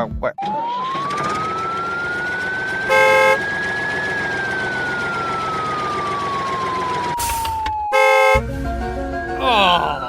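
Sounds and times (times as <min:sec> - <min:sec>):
siren-like wail: 0:00.4 - 0:08.4
short loud honk: 0:02.9 - 0:03.4, 0:07.9 - 0:08.4.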